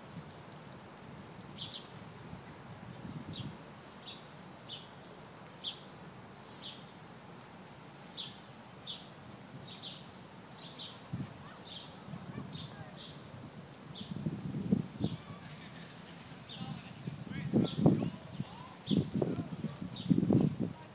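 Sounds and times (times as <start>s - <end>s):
bird chirping: 1.6s - 7.0s.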